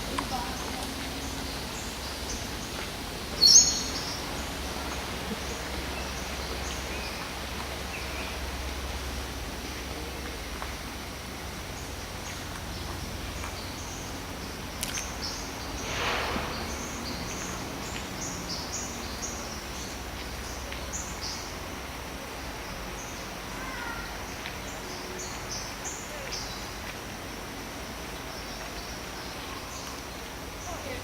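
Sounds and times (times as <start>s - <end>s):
birds chirping: 0.0s - 21.9s, 22.5s - 26.9s
constant low rumble: 0.0s - 31.0s
brief rush of noise: 15.8s - 17.7s.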